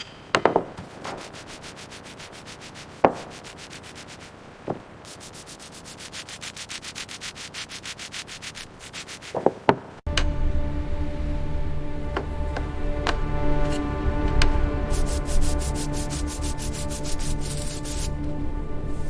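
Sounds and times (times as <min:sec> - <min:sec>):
fast scraping strokes: 0:00.8 - 0:04.4, 0:05.1 - 0:09.6, 0:14.8 - 0:18.2.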